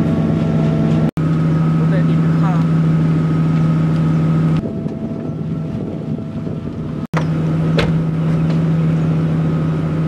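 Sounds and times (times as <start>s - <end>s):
car engine droning: 0.0s - 10.0s
wind buffeting microphone: 3.6s - 7.1s.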